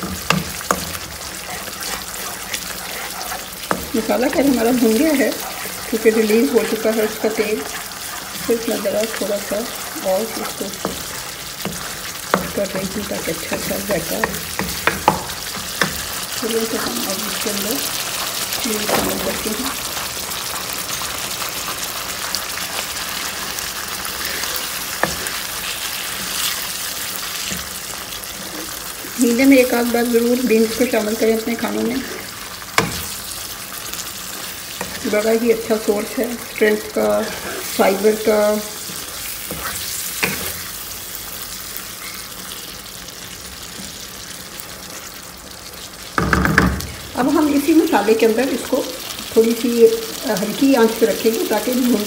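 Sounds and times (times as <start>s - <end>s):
wooden spatula stirring beans: 0.0s - 17.4s, 34.4s - 40.6s
spices sizzling in a pan: 0.0s - 52.0s.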